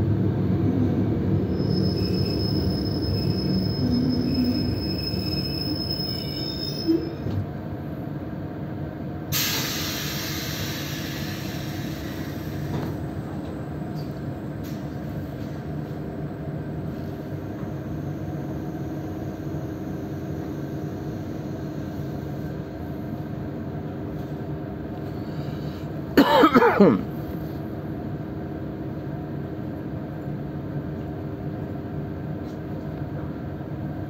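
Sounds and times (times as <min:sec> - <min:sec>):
train low hum: 0:00.0 - 0:34.0
train brakes squealing: 0:01.3 - 0:07.4, 0:09.3 - 0:13.0
loud air hiss: 0:09.3 - 0:12.7.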